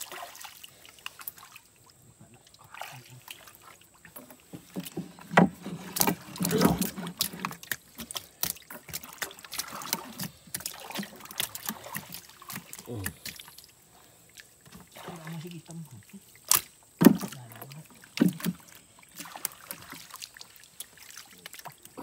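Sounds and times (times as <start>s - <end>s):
fish slapping on wooden boat: 4.5s - 13.6s, 16.4s - 22.0s.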